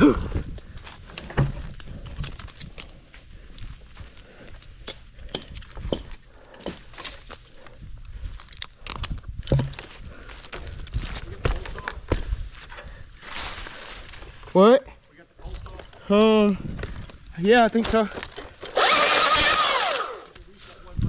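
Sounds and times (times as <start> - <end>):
metal climbing gear clinking: 1.1 - 3.2, 15.6 - 20.2.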